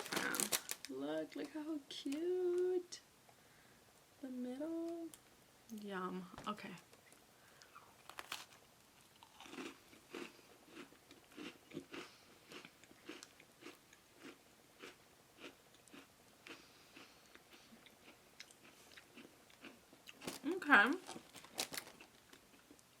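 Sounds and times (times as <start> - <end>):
chewing cookie: 7.6 - 20.4.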